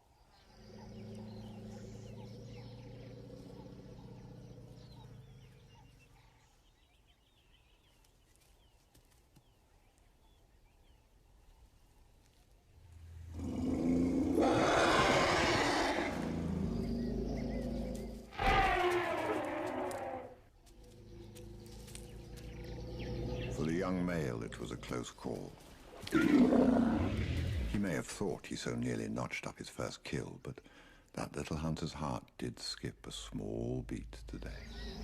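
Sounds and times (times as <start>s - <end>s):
elephant trumpeting: 18.3s - 20.4s.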